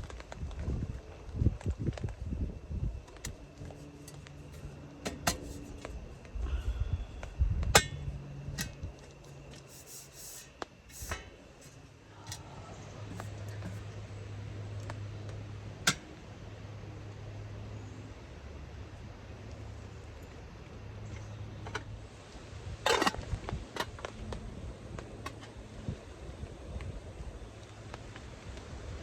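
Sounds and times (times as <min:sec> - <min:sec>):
steady low hum: 0:00.0 - 0:29.0
camping gear clicking and clinking: 0:03.0 - 0:06.0, 0:07.7 - 0:15.1, 0:22.8 - 0:24.2.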